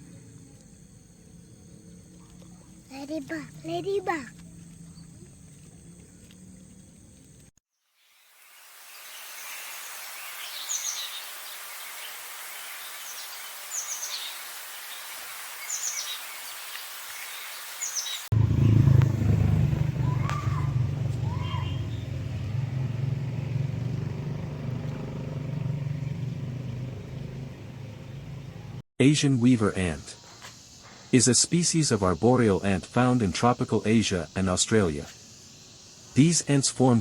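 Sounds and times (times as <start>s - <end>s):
high steady hiss: 8.0s - 18.3s, 29.0s - 37.0s
bird chirps: 8.9s - 18.3s, 20.0s - 22.2s
loud low hum: 18.3s - 28.8s.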